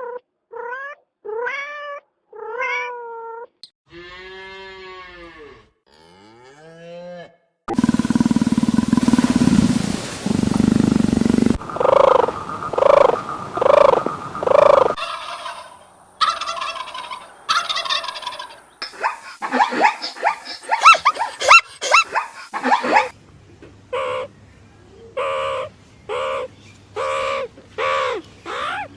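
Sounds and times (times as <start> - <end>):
rapid rattling animal call: 7.7 - 18.6, 19.5 - 23.1, 23.9 - 24.3, 25.2 - 28.9
animal calls: 11.1 - 23.1, 23.9 - 24.3, 25.1 - 28.9.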